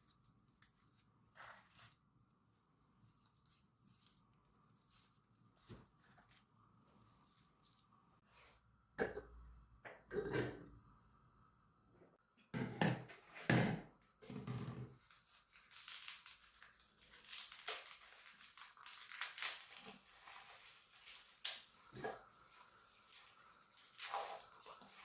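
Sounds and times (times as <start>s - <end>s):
rustling and crinkling handling noises: 0.0s - 8.6s, 13.9s - 25.0s.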